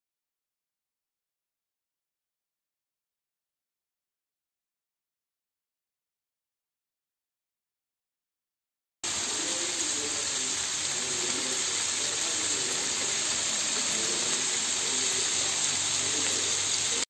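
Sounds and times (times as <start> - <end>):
food sizzling in a hot pan: 9.0 - 17.0.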